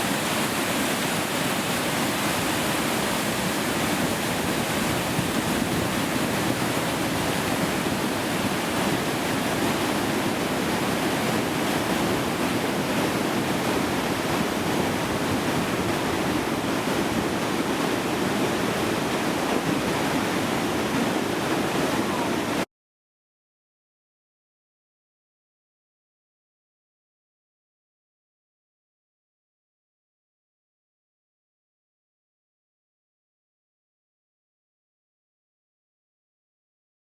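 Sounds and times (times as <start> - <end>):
rushing floodwater: 0.0 - 22.7.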